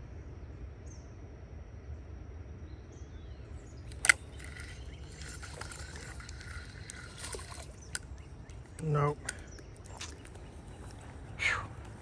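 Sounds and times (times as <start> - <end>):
fish splashing at surface: 3.9 - 8.1.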